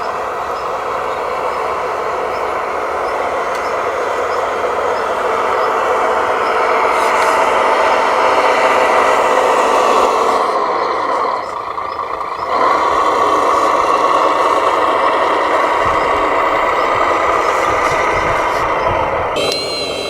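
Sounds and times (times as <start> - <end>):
electric motors whirring: 0.0 - 20.0.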